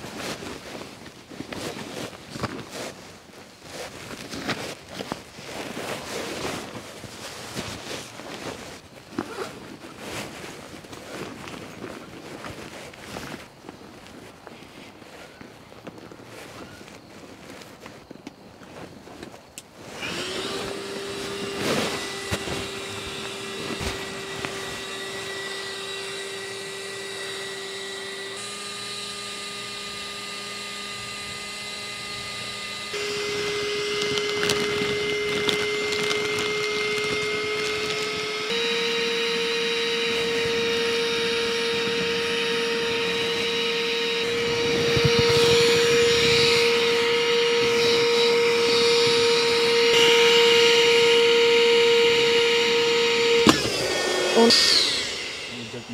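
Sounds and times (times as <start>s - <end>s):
small electric motor humming: 19.4s - 55.9s.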